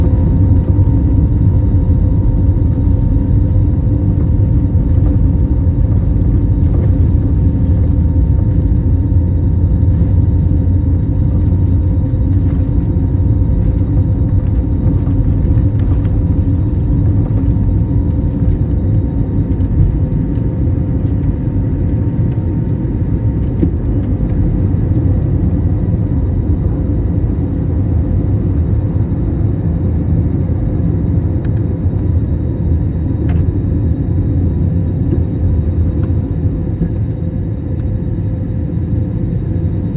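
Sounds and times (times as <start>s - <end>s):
jet engines rumbling: 0.0s - 29.0s
faint engine whine: 0.0s - 39.9s.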